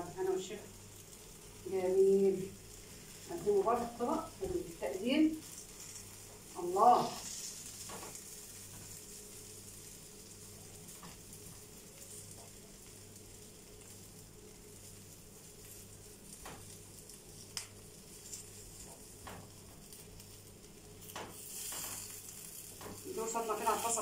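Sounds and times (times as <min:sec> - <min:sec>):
crepes sizzling in a pan: 0:00.0 - 0:24.0
light ticks and knocks: 0:18.8 - 0:19.8, 0:21.1 - 0:22.0.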